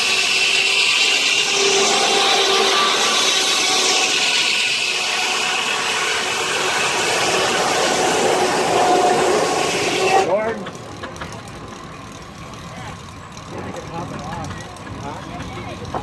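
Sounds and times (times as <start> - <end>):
saw rasping through log: 0.0 - 10.5
spinning blade whine: 0.0 - 16.0.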